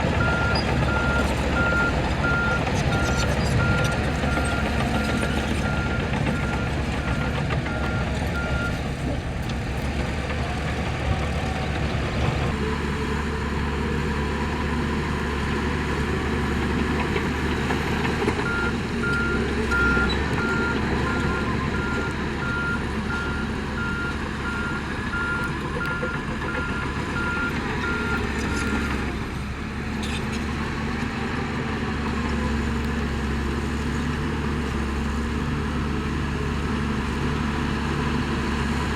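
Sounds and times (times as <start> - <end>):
diesel construction machinery running: 0.0 - 38.9
reversing alarm beeping: 0.2 - 8.7, 18.4 - 28.8.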